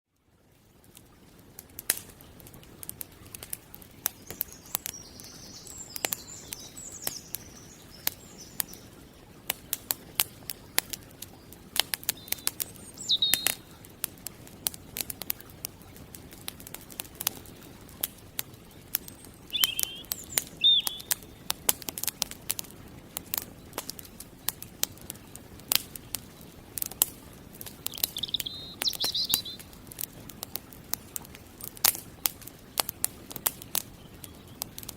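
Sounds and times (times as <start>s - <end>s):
campfire crackling and popping: 0.2s - 34.9s
birds chirping: 4.0s - 13.9s, 18.6s - 21.7s, 27.5s - 30.6s, 33.6s - 34.8s.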